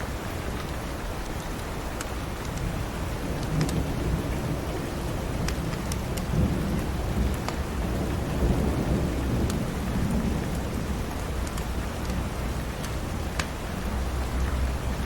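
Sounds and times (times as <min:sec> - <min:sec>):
steady rain: 0:00.0 - 0:15.0
thunder rumbling: 0:02.7 - 0:15.0
wood fire crackling: 0:05.3 - 0:14.4.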